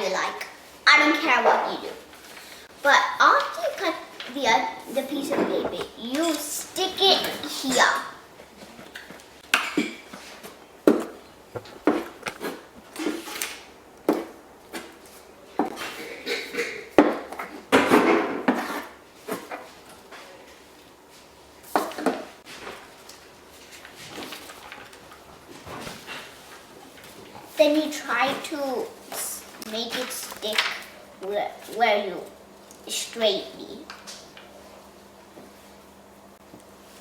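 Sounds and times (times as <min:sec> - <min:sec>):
paper rustling: 0:22.4 - 0:27.3, 0:28.2 - 0:30.9.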